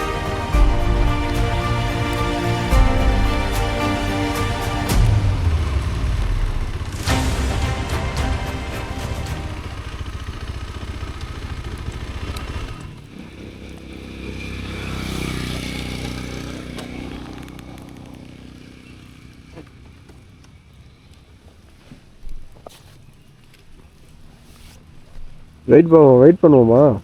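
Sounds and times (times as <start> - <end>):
background music: 0.0 - 10.4
vehicle engine passing by: 0.0 - 21.6.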